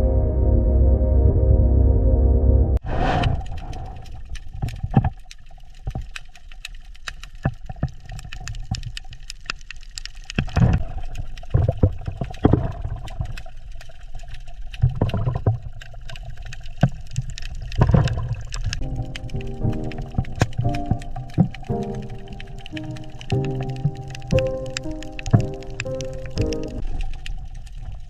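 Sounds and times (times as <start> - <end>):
low rumble: 0.0 - 4.4, 18.8 - 26.8
water gurgling and sloshing: 2.8 - 28.0
sharp clicks and crackles: 3.0 - 28.0.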